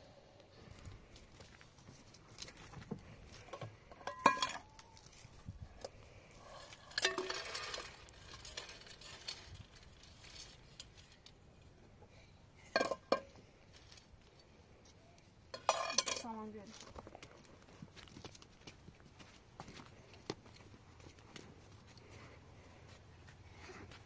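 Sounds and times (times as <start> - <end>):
kitchenware clinking: 3.9 - 4.8, 15.6 - 16.3
kitchenware clattering: 15.6 - 16.3.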